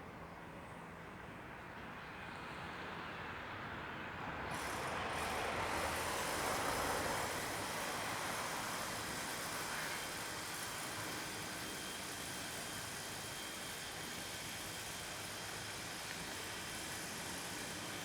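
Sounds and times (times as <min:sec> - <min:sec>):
train passing: 0:04.4 - 0:18.0.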